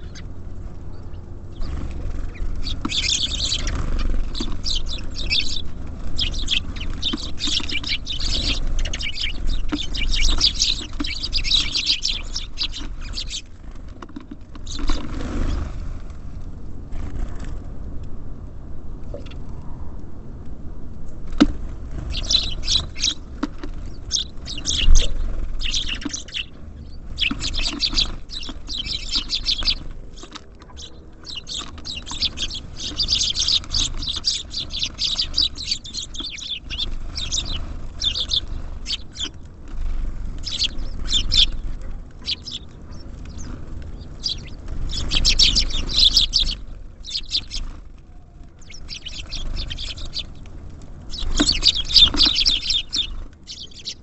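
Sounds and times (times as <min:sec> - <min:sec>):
small songbirds chirping: 0:00.0 - 0:15.8, 0:21.3 - 0:54.0
steady low rumble: 0:00.0 - 0:54.0.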